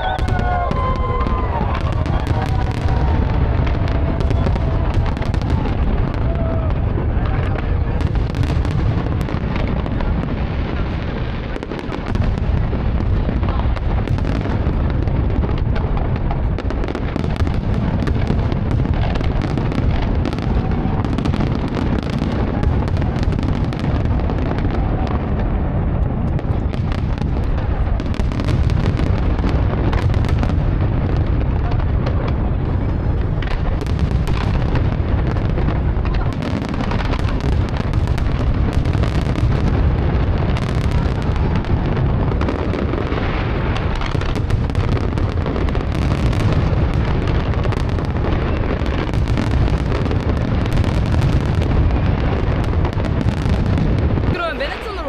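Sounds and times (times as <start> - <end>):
fireworks bangs and crackles: 0.0 - 55.0
fireworks booming: 0.0 - 55.0.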